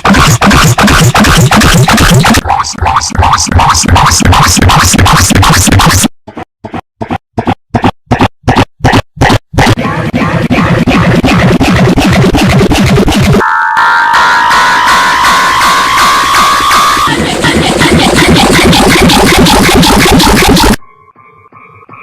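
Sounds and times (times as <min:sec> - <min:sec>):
distorted electronic remix pulsing: 0:00.0 - 0:22.0.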